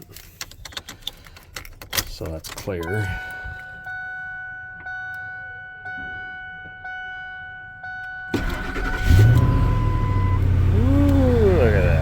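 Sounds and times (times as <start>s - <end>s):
warning chime dinging: 2.8s - 10.5s
engine cranking and starting: 8.3s - 10.4s.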